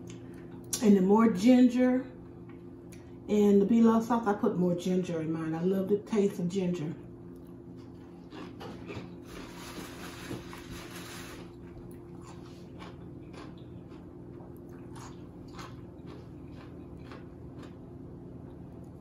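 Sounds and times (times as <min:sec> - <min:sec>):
steady low hum: 0:00.0 - 0:19.0
wet chewing: 0:07.3 - 0:09.7, 0:11.5 - 0:17.8.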